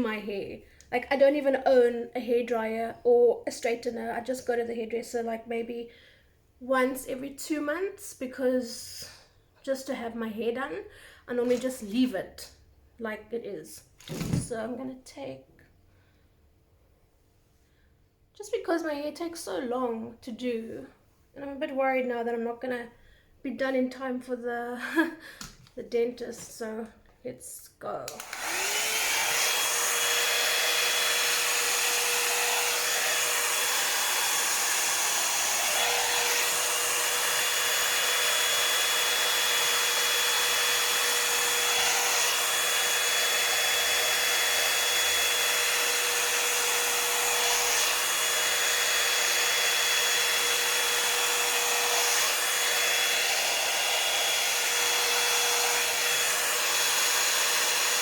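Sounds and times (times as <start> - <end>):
hair dryer brush running: 28.1 - 58.0.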